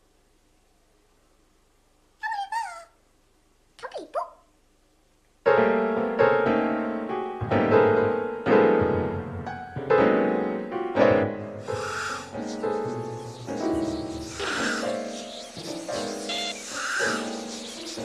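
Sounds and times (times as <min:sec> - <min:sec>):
slow sad piano tune: 0:05.5 - 0:18.0.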